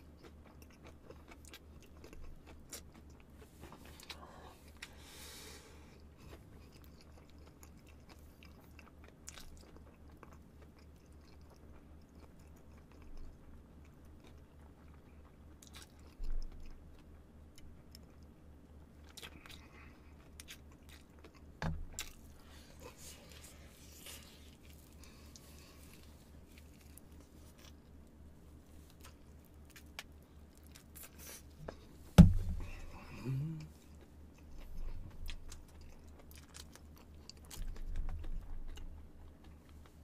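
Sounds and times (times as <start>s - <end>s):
chewing crispy chicken: 0.0s - 31.6s, 32.6s - 40.0s
steady low hum: 0.0s - 40.0s
low thump: 32.2s - 32.8s.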